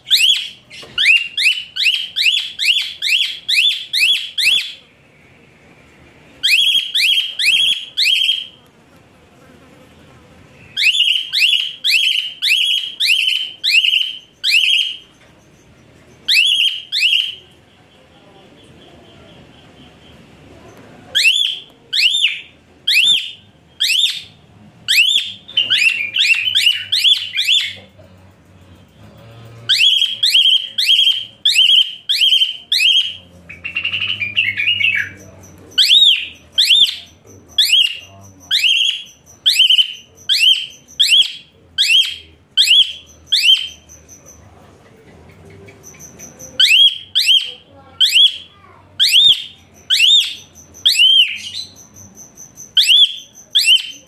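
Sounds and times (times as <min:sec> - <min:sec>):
bird scratchy chatter: 0:24.0 - 0:54.0.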